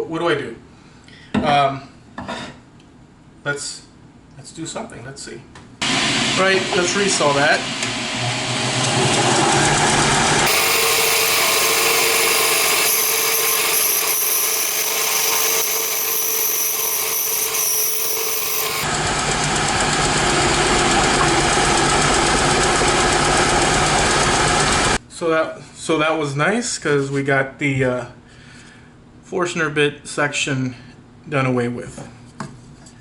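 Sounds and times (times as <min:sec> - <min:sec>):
bandsaw cutting wood: 0:10.4 - 0:18.9.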